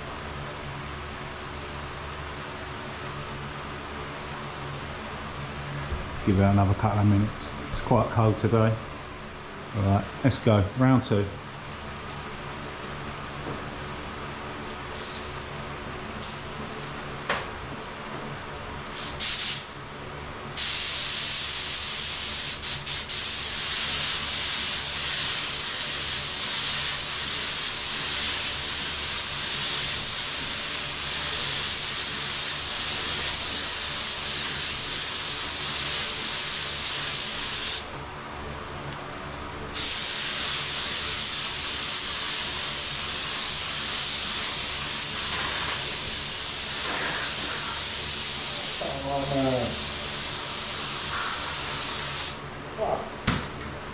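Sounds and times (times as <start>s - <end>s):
spray gun hissing: 19.0s - 19.7s, 20.6s - 37.9s, 39.8s - 52.4s.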